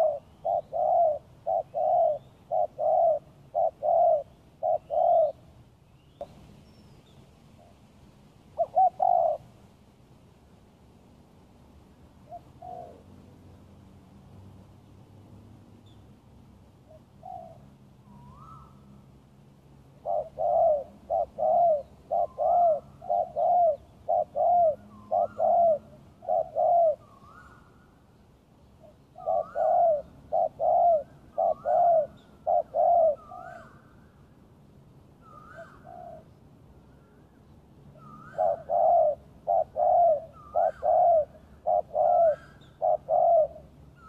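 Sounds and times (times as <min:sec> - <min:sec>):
dove cooing: 0:00.0 - 0:05.6, 0:08.6 - 0:09.5, 0:12.2 - 0:13.1, 0:20.0 - 0:27.6, 0:28.9 - 0:33.8, 0:35.2 - 0:36.3, 0:38.0 - 0:44.0.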